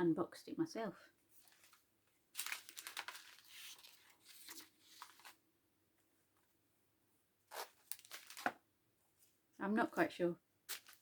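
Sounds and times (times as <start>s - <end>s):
packaging rustling: 1.4s - 5.4s, 7.5s - 8.6s.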